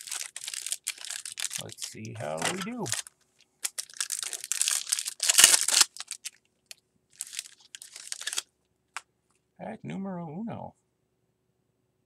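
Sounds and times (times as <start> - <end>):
wrapper crinkling and ripping: 0.0 - 6.4, 7.2 - 8.5.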